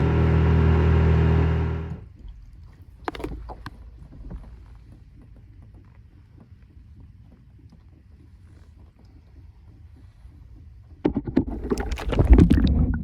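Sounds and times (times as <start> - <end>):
boat motor running: 0.0 - 2.2.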